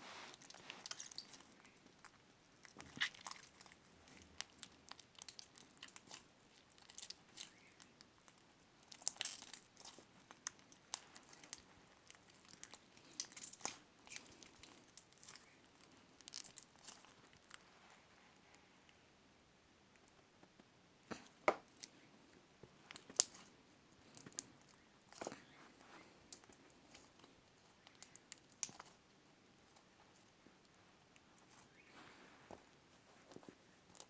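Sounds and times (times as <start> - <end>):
slime squishing and crackling: 0.3 - 17.7, 22.8 - 23.5, 26.3 - 29.0.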